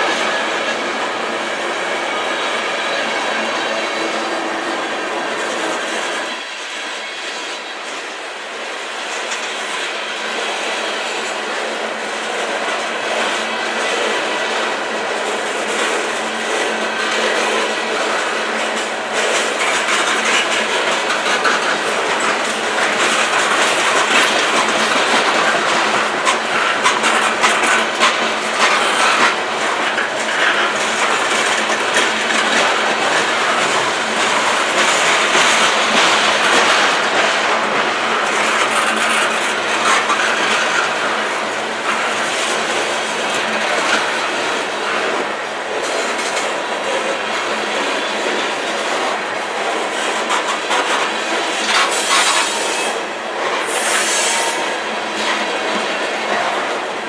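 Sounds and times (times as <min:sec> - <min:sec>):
wheels clacking over rail joints: 0:15.2 - 0:52.8.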